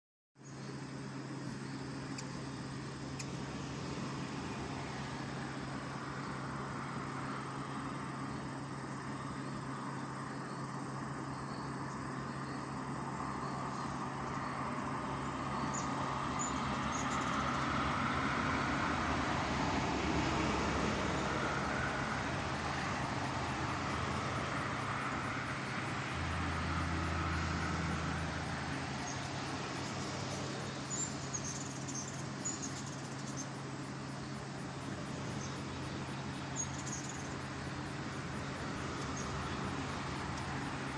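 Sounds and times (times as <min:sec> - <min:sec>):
road traffic noise: 0:00.4 - 0:40.9.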